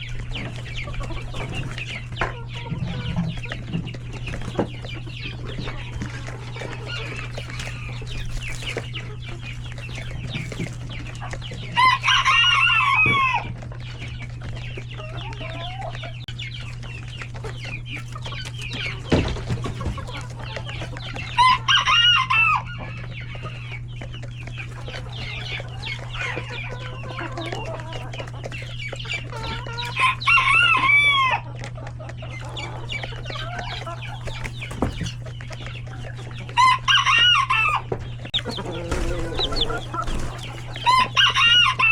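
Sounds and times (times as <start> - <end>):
chickens clucking: 0.0 - 41.9
rooster crowing: 11.8 - 13.5, 21.4 - 22.7, 30.0 - 31.5, 36.6 - 41.9.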